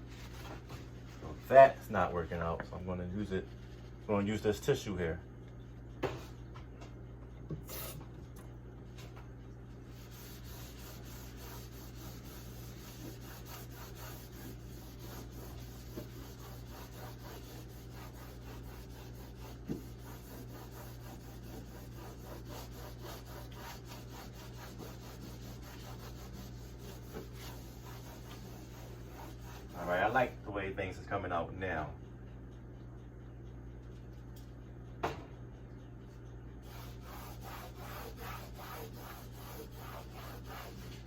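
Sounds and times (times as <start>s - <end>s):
tissue scrubbing refrigerator: 0.0s - 5.1s, 9.7s - 30.7s, 36.6s - 41.0s.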